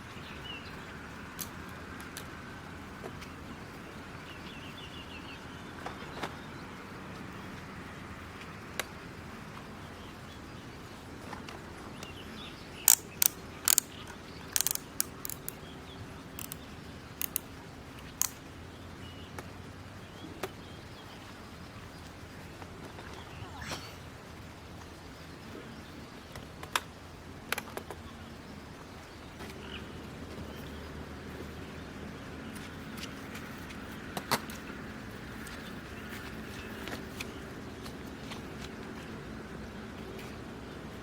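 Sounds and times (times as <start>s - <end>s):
outdoor background hiss: 0.0s - 41.0s
faint bird chirp: 11.9s - 26.3s
sharp clicks and taps: 12.9s - 15.6s, 16.4s - 16.6s, 17.2s - 17.5s.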